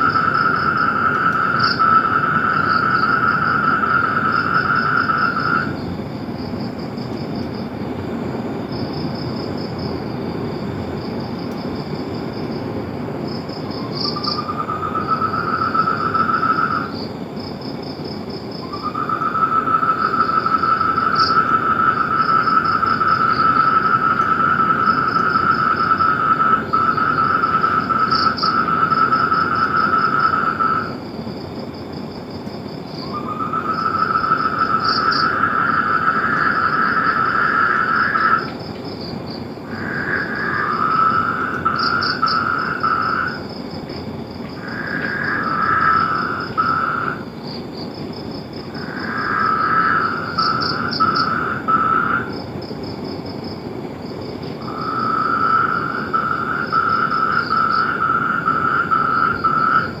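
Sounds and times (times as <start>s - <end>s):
rapidly pulsed animal calls: 0.0s - 5.8s, 13.8s - 17.1s, 18.6s - 31.0s, 33.0s - 38.6s, 39.6s - 43.5s, 44.6s - 47.3s, 48.7s - 52.4s, 54.6s - 60.0s.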